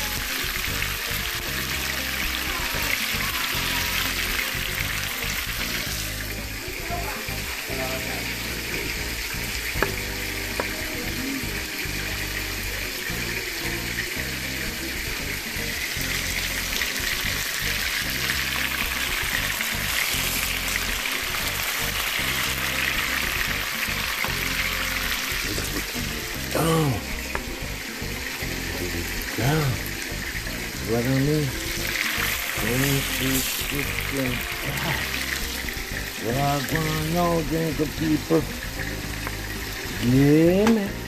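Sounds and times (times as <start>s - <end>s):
chicken sizzling in hot oil: 0.0s - 41.0s.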